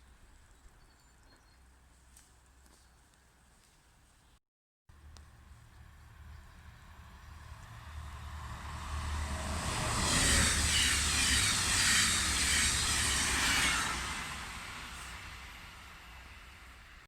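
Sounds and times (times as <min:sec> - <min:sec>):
train passing by: 0:05.0 - 0:17.0.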